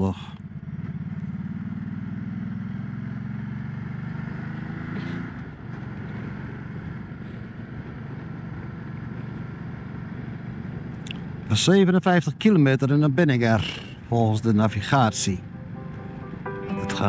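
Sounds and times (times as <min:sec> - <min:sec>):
motorcycle engine running: 0:00.4 - 0:04.6.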